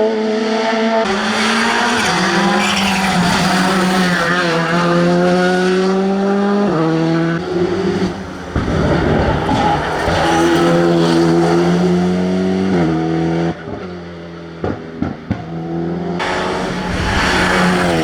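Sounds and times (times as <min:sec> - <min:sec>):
rally car engine at full throttle: 0:00.0 - 0:18.0
tyre noise: 0:01.1 - 0:06.0, 0:07.4 - 0:12.4, 0:16.2 - 0:18.0.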